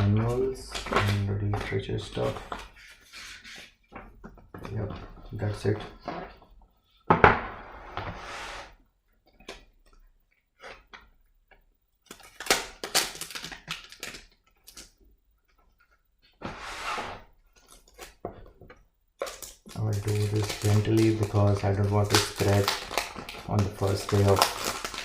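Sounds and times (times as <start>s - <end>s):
packaging rustling: 12.0s - 15.0s, 19.2s - 25.0s.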